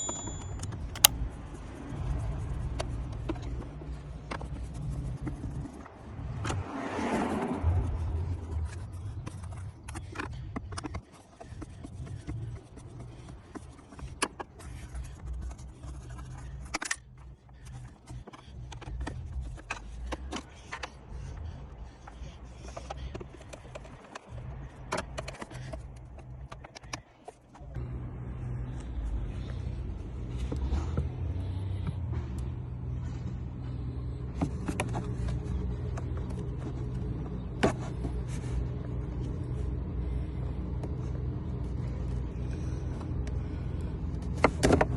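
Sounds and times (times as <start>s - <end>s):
car engine running: 0.0s - 5.6s, 27.5s - 44.9s
sharp clicks and scrapes: 0.6s - 1.3s, 8.6s - 21.0s.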